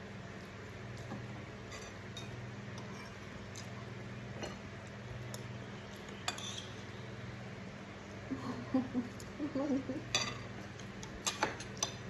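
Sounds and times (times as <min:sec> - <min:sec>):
steady low hum: 0:00.0 - 0:12.0
cutlery clinking on dishes: 0:06.2 - 0:06.8, 0:10.1 - 0:10.5, 0:11.1 - 0:12.0.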